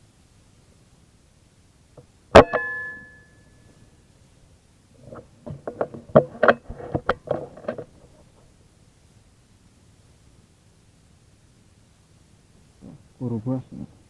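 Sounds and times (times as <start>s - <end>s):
metallic ring: 2.3s - 4.0s
sharp clicks and knocks: 5.2s - 8.2s.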